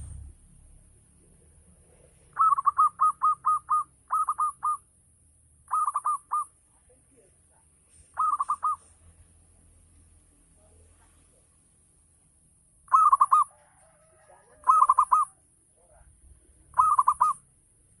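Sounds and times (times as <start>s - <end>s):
dove cooing: 2.2s - 4.8s, 5.7s - 6.5s, 8.2s - 8.9s, 12.9s - 15.4s, 16.7s - 17.4s.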